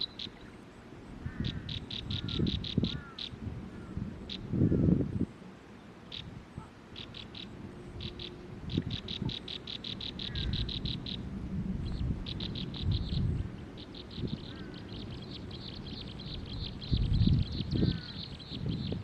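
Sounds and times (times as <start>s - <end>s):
bird trilled chirps: 0.0s - 0.5s, 7.0s - 11.2s, 11.9s - 19.0s
low rumbling noise: 0.0s - 19.0s.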